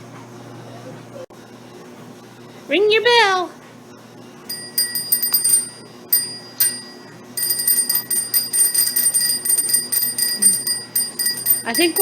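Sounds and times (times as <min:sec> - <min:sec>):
bike bell ringing: 0:04.5 - 0:12.0.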